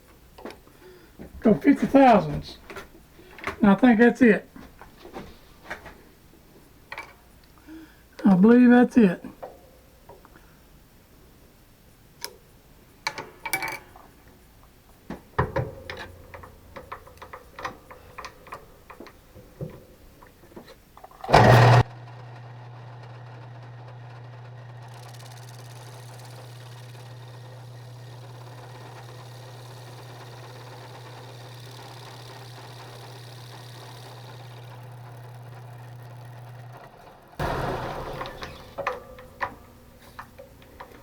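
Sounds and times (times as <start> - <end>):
handling clicks and knocks: 0.0 - 7.6, 12.2 - 21.8, 37.4 - 41.0
low motor hum: 15.2 - 41.0
short loud burst: 37.4 - 39.9.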